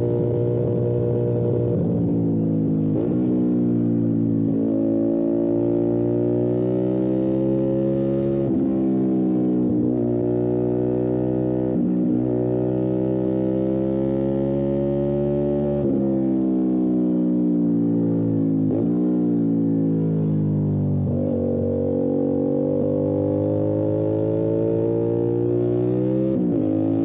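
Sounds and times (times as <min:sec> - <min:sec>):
motorcycle engine running: 0:21.0 - 0:27.0.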